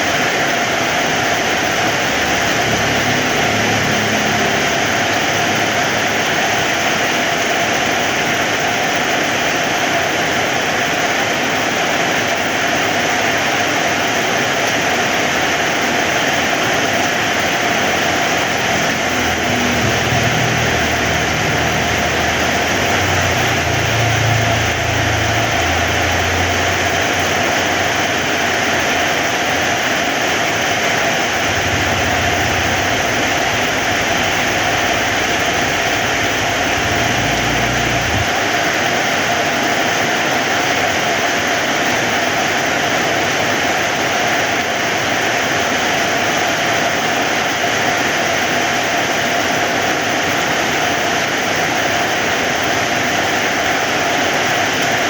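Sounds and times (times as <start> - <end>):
heavy rain falling: 0.0 - 55.0
low rumble: 1.5 - 7.2, 17.6 - 29.4, 30.7 - 38.8.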